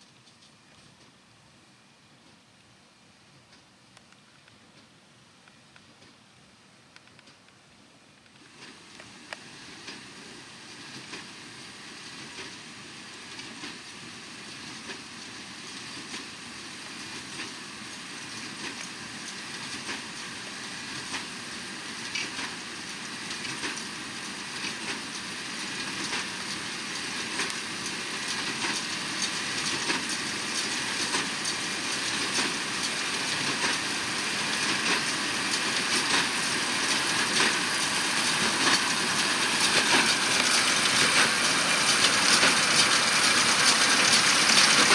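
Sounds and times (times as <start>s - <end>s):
tractor machine drone: 16.0s - 44.9s.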